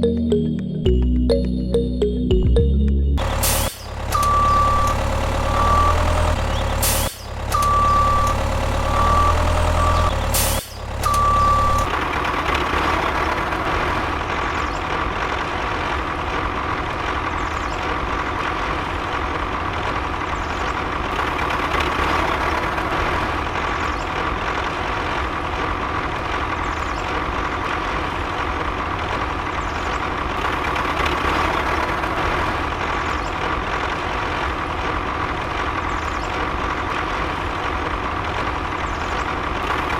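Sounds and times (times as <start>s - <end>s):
electronic beeping: 3.4s - 6.4s, 7.5s - 11.9s.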